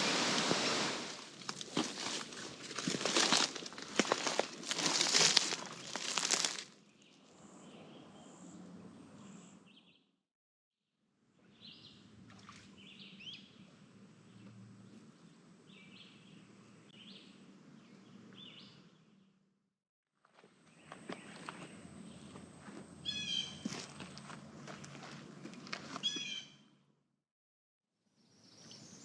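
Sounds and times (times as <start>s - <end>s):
loud crackly rustle: 0.0s - 6.7s
small birds chirping: 26.0s - 26.6s.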